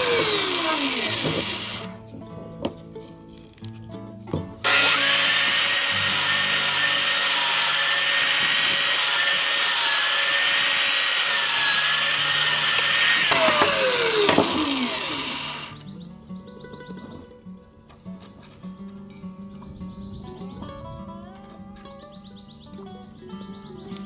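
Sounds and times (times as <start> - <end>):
electric power tool motor: 0.0 - 2.0, 4.6 - 15.8.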